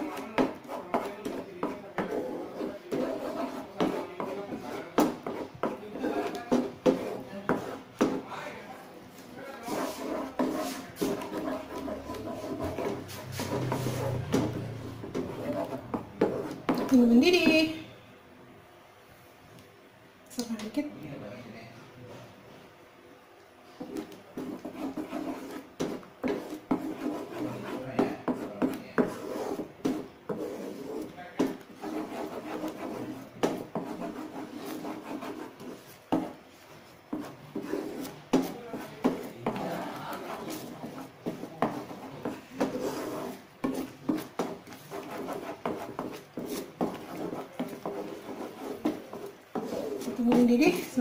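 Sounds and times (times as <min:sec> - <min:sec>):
spatula scraping in a pan: 0:09.2 - 0:17.2, 0:23.8 - 0:51.0.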